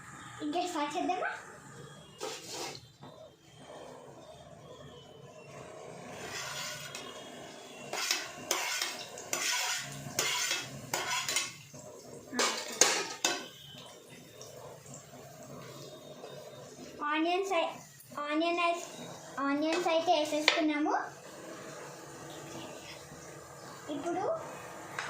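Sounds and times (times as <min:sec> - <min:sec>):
onions frying hiss: 0:02.1 - 0:02.8, 0:03.5 - 0:25.0
metal spoon scraping a pan: 0:02.1 - 0:02.9, 0:05.5 - 0:14.2, 0:18.6 - 0:20.6.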